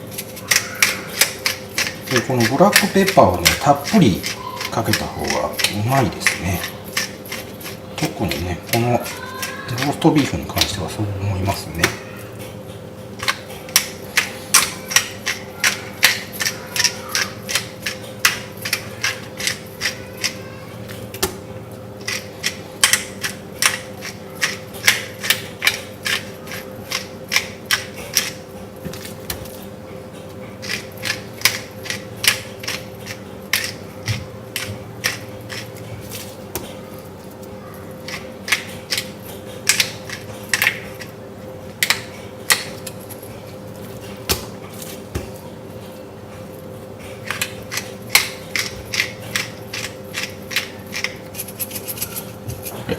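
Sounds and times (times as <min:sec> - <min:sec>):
pepper grinder grinding clicks: 0:00.2 - 0:10.8, 0:13.2 - 0:21.3, 0:22.0 - 0:29.1, 0:30.6 - 0:33.8, 0:34.6 - 0:36.2, 0:47.2 - 0:52.2.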